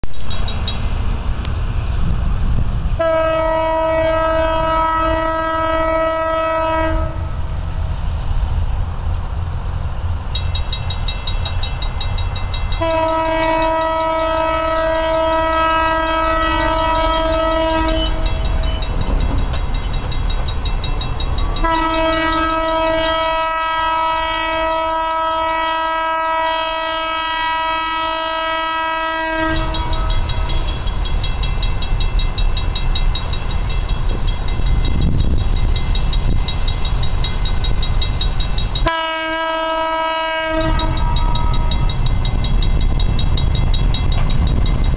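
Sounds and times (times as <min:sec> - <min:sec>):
train running rumble: 0:00.0 - 0:44.9
locomotive air horn blasts: 0:03.0 - 0:07.4, 0:12.8 - 0:18.6, 0:21.6 - 0:30.5, 0:38.8 - 0:41.9.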